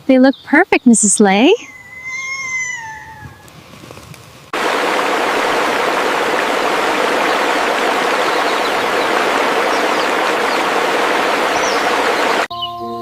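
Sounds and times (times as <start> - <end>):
rush of running water: 4.5 - 12.5.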